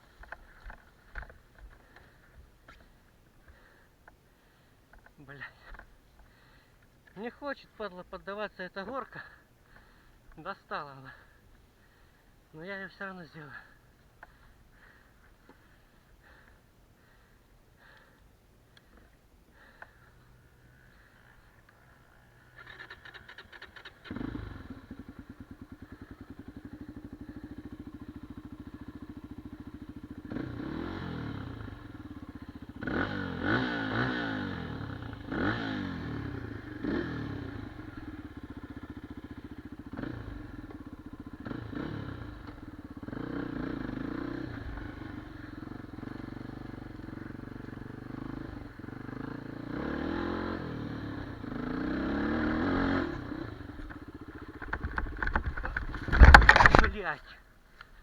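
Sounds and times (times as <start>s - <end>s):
motorcycle engine revving: 20.6s - 57.1s
clattering: 54.6s - 57.0s.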